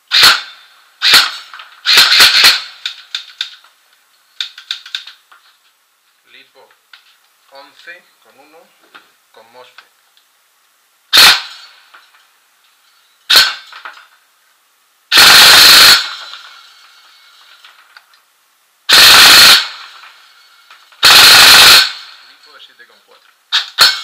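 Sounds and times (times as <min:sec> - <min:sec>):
airsoft gun firing bursts: 0:00.1 - 0:03.5, 0:11.1 - 0:11.7, 0:13.3 - 0:13.9, 0:15.1 - 0:16.4, 0:18.9 - 0:20.0, 0:21.0 - 0:22.2, 0:23.5 - 0:24.0.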